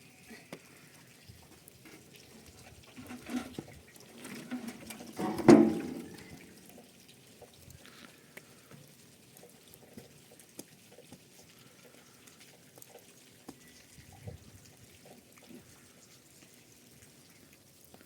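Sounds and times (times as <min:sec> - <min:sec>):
faint ticks and taps: 0:00.5 - 0:15.6
knock: 0:05.2 - 0:06.1.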